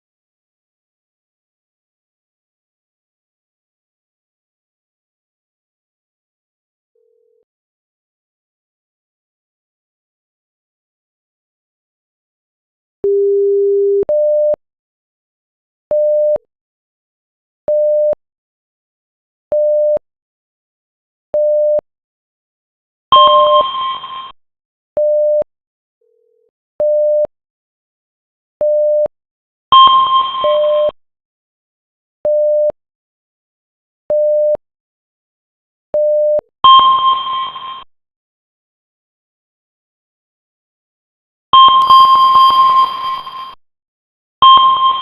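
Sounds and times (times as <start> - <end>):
high ringing tone: 41.6 - 43.6
short electronic beeps: 41.6 - 43.6, 44.4 - 45.0.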